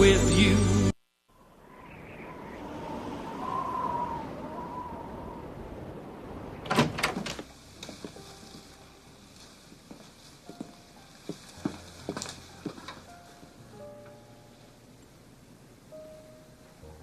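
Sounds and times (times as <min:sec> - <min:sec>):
door banging: 0:06.6 - 0:07.5.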